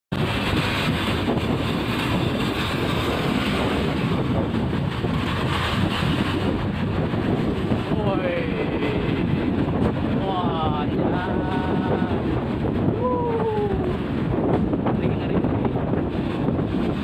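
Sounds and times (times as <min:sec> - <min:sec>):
road and vehicle noise: 0:00.1 - 0:17.0
wind buffeting microphone: 0:00.1 - 0:17.0.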